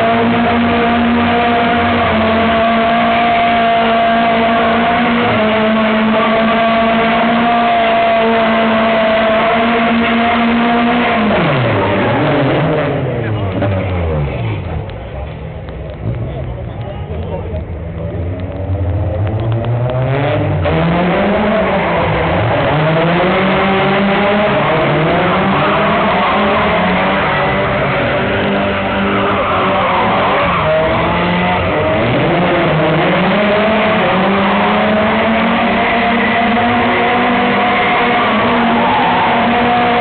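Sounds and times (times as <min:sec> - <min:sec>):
car engine revving hard: 0:00.0 - 0:14.8, 0:18.4 - 0:40.0
tyre squeal: 0:24.3 - 0:31.9.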